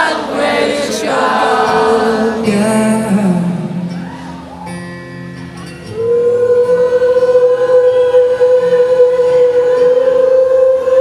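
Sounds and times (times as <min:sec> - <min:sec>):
live rock music: 0:01.8 - 0:06.0.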